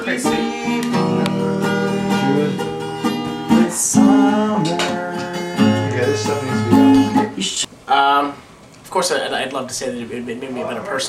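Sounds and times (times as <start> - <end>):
acoustic guitar strumming: 0.0 - 7.7.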